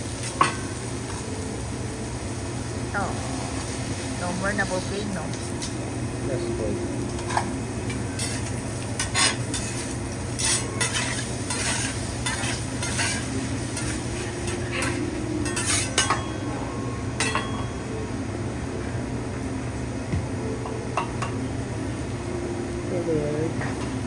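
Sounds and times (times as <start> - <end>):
food sizzling on griddle: 0.0 - 18.8
steady low hum: 0.0 - 24.0
metal spatulas scraping and clinking: 8.2 - 16.3.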